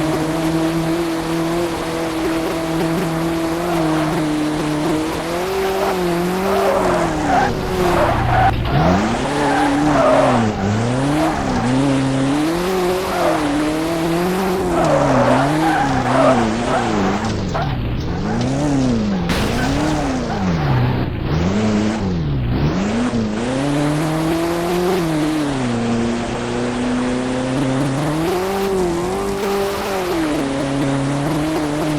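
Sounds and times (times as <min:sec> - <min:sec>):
car engine revving: 0:00.0 - 0:31.9
tyres squealing and skidding: 0:00.0 - 0:31.9.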